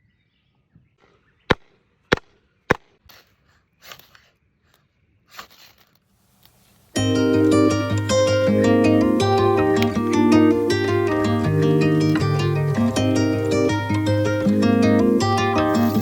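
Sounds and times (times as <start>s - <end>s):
soft rustling scrapes: 3.1s - 7.0s, 15.6s - 16.0s
harp-like plucked-string music: 7.0s - 16.0s.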